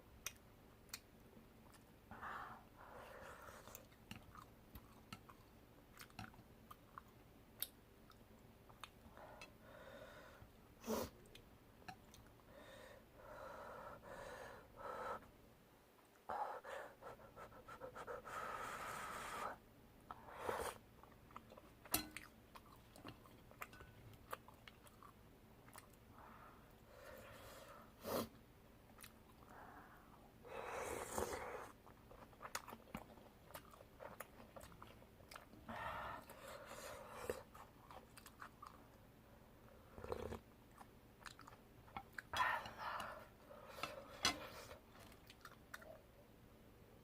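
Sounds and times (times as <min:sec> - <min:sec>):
chewing and wet mouth noises: 0:03.4 - 0:09.6, 0:20.9 - 0:26.1, 0:28.8 - 0:29.6, 0:31.1 - 0:39.2, 0:39.9 - 0:46.1.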